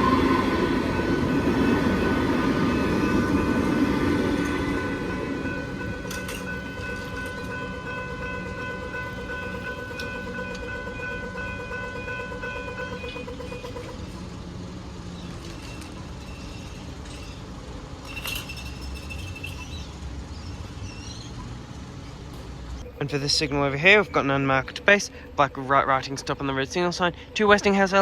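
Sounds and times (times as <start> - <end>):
level crossing bell ringing: 0.0 - 14.2
passing train rumbling: 0.0 - 28.0.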